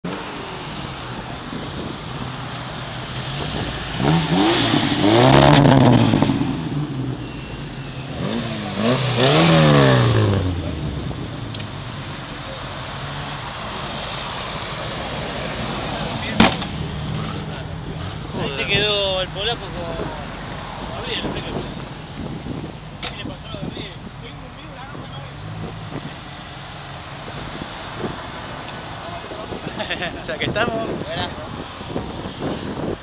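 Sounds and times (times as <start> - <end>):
car engine revving: 2.1 - 23.5.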